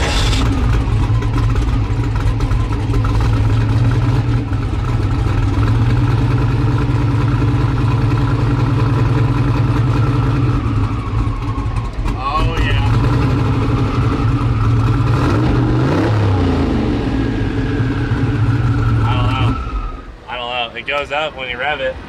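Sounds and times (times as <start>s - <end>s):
car engine idling: 0.0s - 22.0s
people talking: 12.2s - 13.0s, 19.0s - 19.6s, 20.3s - 22.0s.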